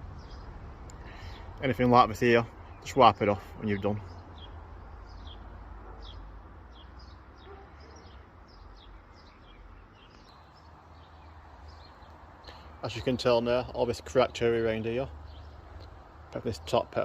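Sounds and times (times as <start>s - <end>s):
low outdoor rumble: 0.0s - 6.8s
small birds chirping: 0.0s - 17.0s.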